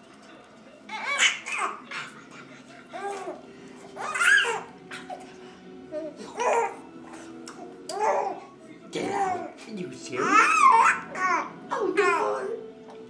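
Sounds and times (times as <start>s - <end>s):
infant squealing: 0.9s - 2.1s, 4.0s - 5.2s, 10.2s - 12.6s
infant cooing and babbling: 2.9s - 3.4s, 4.0s - 5.3s, 5.9s - 6.9s, 7.6s - 9.6s, 10.2s - 12.6s.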